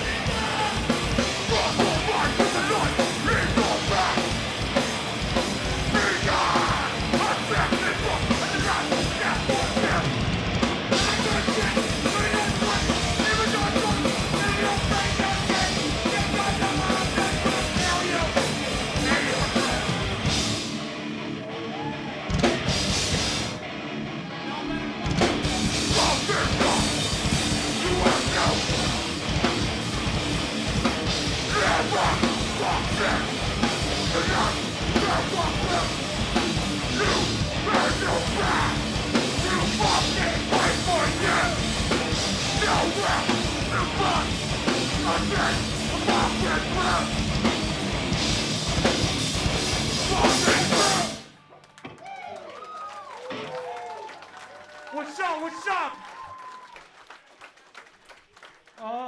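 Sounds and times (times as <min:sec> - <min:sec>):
shouted vocals: 0:00.0 - 0:04.5, 0:05.6 - 0:10.2, 0:10.9 - 0:20.3, 0:25.8 - 0:29.1, 0:31.3 - 0:47.6, 0:49.8 - 0:51.3, 0:52.0 - 0:56.8
bass guitar: 0:00.0 - 0:51.4
distorted guitars: 0:00.0 - 0:51.5
pounding drums: 0:25.2 - 0:51.2.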